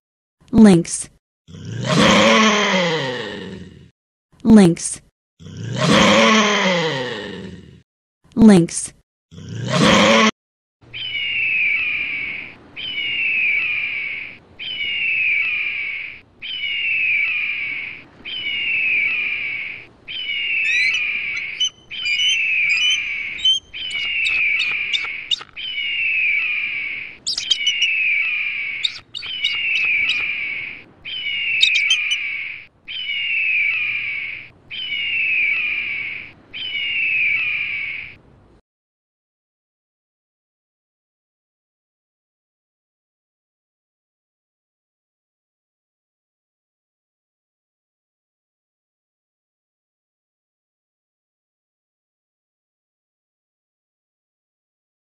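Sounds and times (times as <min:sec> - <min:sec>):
birds chirping and whistling: 0:20.1 - 0:32.3
bird call of falling notes: 0:20.6 - 0:25.8, 0:27.3 - 0:32.3.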